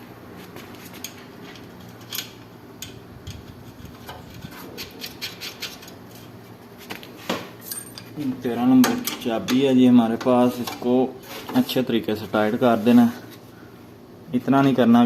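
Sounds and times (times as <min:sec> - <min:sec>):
steady low hum: 0:00.0 - 0:15.0
small metal clicks and scraping: 0:00.9 - 0:06.3.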